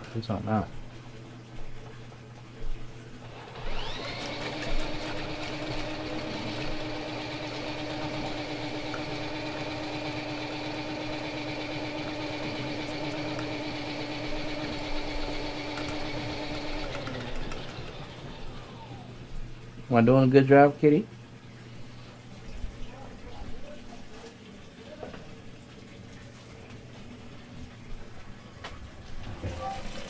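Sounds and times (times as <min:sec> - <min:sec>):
drain-cleaning machine motor: 0:03.2 - 0:21.0.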